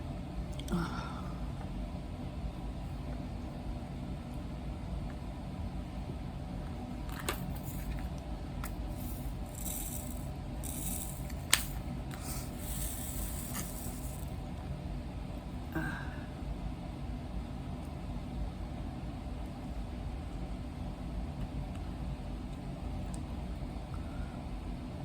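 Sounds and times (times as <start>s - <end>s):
steady low hum: 0.0s - 25.0s
small plastic pieces rattling: 9.0s - 14.3s.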